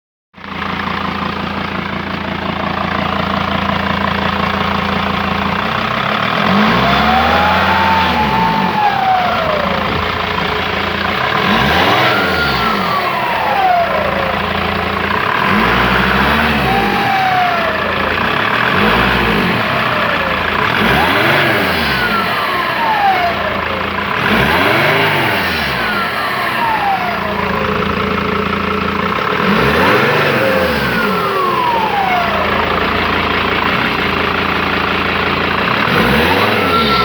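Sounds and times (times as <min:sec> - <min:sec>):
diesel engine idling and revving: 0:00.3 - 0:37.0
turbocharger whistle: 0:02.5 - 0:37.0.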